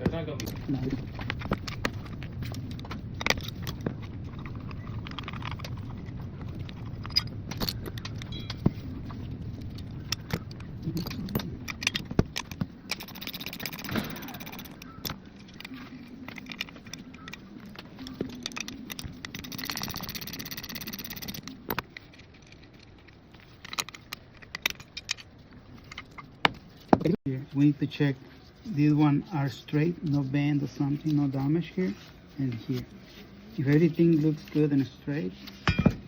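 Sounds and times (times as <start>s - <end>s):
metal parts rattling: 0.0s - 27.1s, 35.4s - 36.0s
metal parts clinking and knocking: 0.0s - 27.2s, 35.4s - 36.0s.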